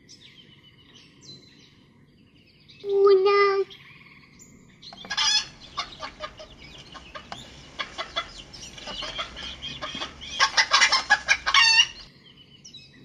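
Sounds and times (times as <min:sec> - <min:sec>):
hens clucking: 0:04.9 - 0:12.1.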